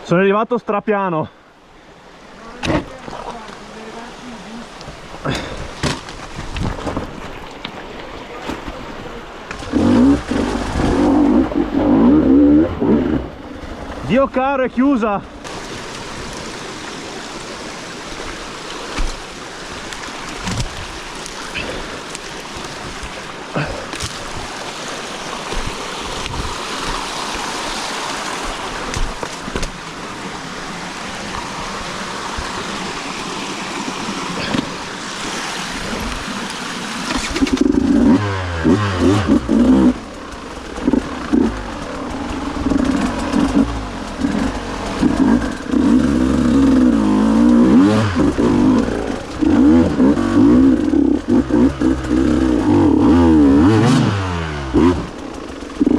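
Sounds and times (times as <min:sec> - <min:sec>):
dirt bike engine revving: 0:09.6 - 0:13.5, 0:36.8 - 0:55.9.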